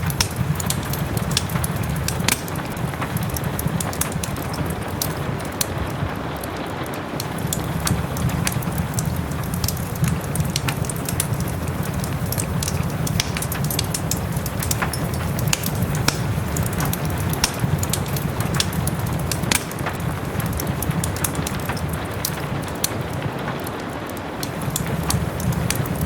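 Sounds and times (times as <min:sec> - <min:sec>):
soft rain falling: 0:00.0 - 0:26.0
wood fire crackling: 0:00.0 - 0:26.0.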